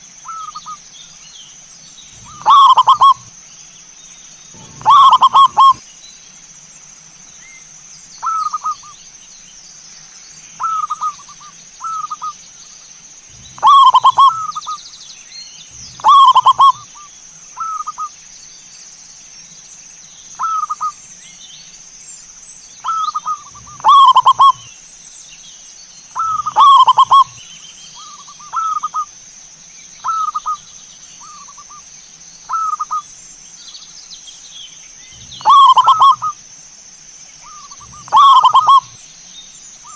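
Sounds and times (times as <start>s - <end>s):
steady high-pitched hiss: 0.0s - 39.9s
doves cooing: 2.2s - 3.3s, 4.5s - 5.8s, 13.3s - 14.8s, 15.7s - 17.0s, 22.8s - 24.7s, 26.2s - 27.4s, 28.0s - 29.1s, 35.2s - 36.4s, 37.4s - 39.0s.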